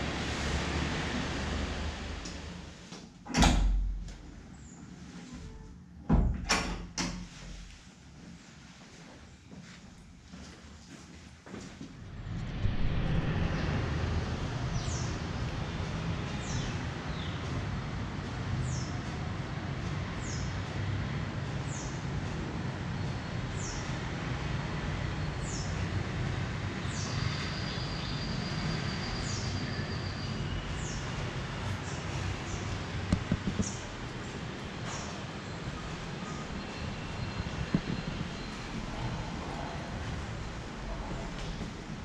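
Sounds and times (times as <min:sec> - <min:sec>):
train rumbling along track: 0:12.0 - 0:22.9.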